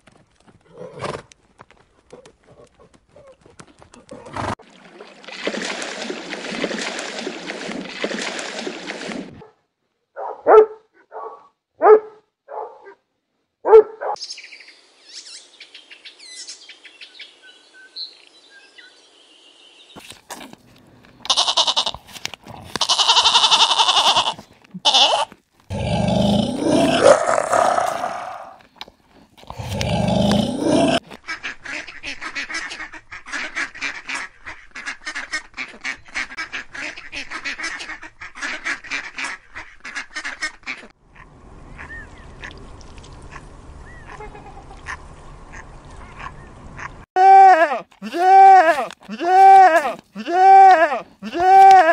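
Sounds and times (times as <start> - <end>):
goat bleating: 21.2 - 22.0, 22.7 - 25.4, 47.4 - 51.9.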